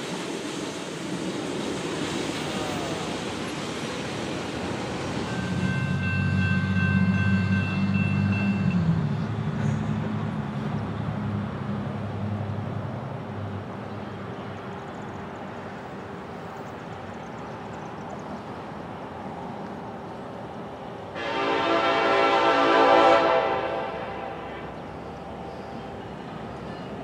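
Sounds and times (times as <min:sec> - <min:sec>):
locomotive air horn blowing: 0:21.2 - 0:24.8.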